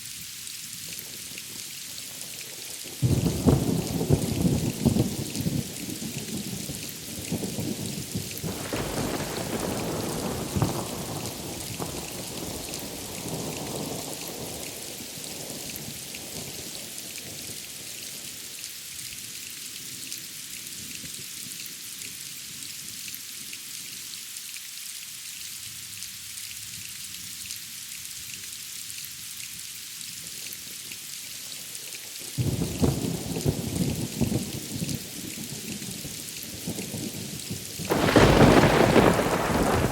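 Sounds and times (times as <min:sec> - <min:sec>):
steady rain hissing: 0:00.0 - 0:39.9
thunder rumbling: 0:03.0 - 0:05.8, 0:08.4 - 0:14.0, 0:37.9 - 0:39.9.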